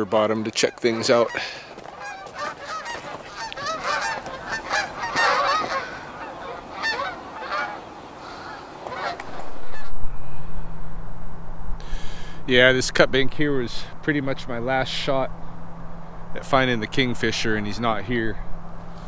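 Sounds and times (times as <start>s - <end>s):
geese honking: 0.0s - 10.0s
low steady hum: 0.0s - 19.0s.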